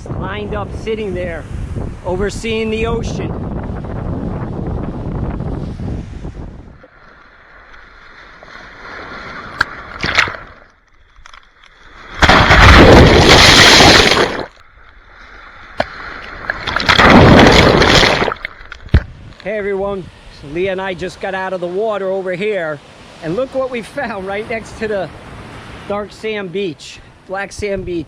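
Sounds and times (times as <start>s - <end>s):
ocean surf breaking: 11.8s - 18.7s.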